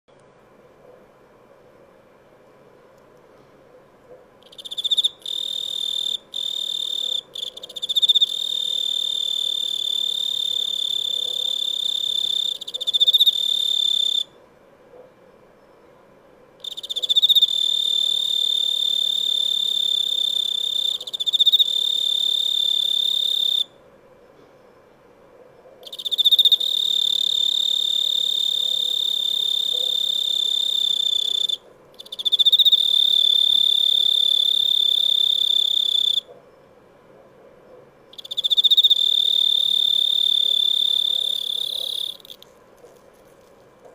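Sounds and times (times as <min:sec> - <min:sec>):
cricket trilling: 0:04.4 - 0:14.4, 0:16.6 - 0:23.8, 0:25.8 - 0:36.3, 0:38.1 - 0:43.3.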